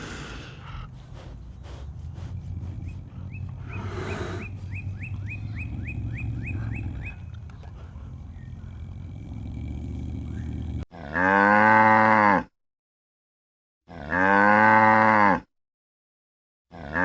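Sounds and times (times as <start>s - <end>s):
low rumble: 0.6s - 10.8s
cow mooing: 2.7s - 12.5s, 13.9s - 15.5s, 16.7s - 17.0s.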